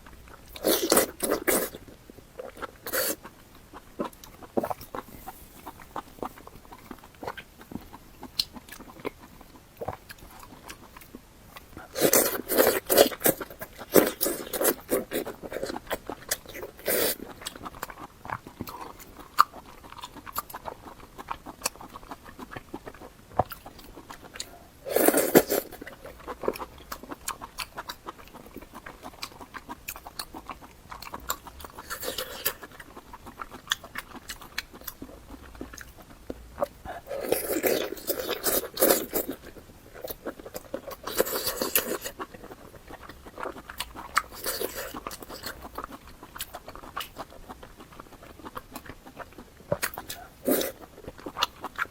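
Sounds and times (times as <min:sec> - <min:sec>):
person chewing noodles: 0:00.0 - 0:51.9.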